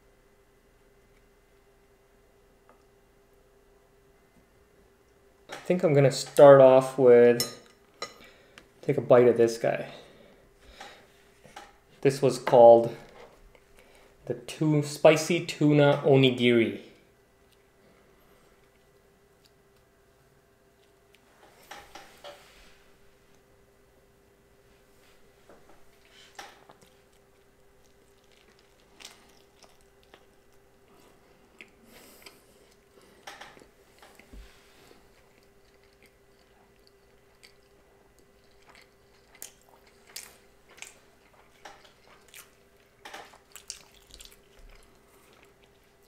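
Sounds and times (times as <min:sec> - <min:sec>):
person chewing food: 0:17.4 - 0:20.0, 0:25.8 - 0:46.0.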